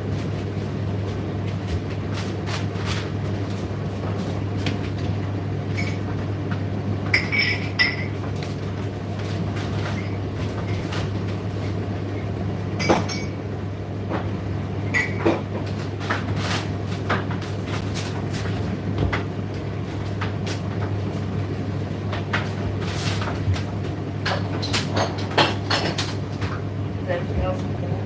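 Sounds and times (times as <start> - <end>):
tumble dryer humming: 25.6 - 28.0.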